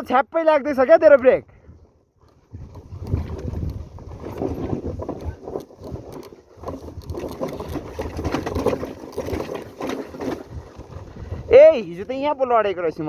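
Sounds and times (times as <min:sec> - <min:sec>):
rattling on rough road: 0:02.2 - 0:13.0
motorcycle engine clatter: 0:02.7 - 0:10.9.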